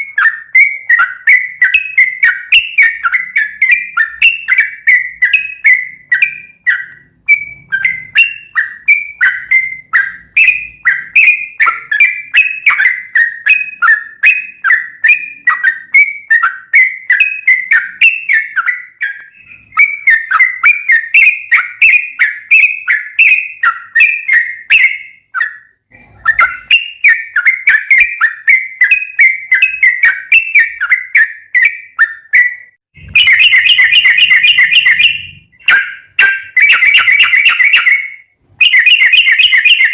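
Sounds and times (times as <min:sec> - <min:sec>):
bird chattering calls: 0:33.0 - 0:39.9.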